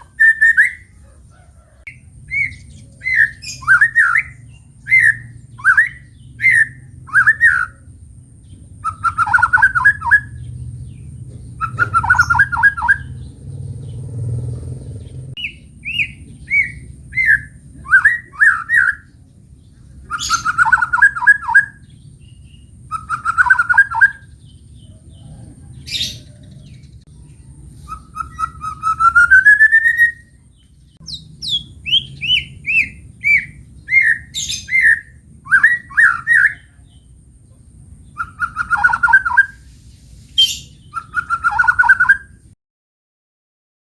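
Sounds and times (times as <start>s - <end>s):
bird singing whistled phrases: 0.0s - 1.0s, 1.9s - 7.9s, 8.8s - 10.4s, 11.6s - 13.2s, 15.4s - 19.1s, 20.0s - 24.4s, 27.8s - 30.4s, 31.0s - 37.0s, 38.1s - 39.7s, 40.4s - 42.5s.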